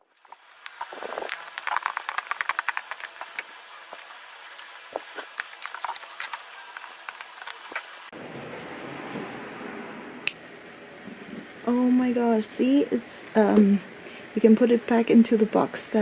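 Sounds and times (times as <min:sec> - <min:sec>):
small plastic toys clicking and rattling: 0:00.0 - 0:08.0.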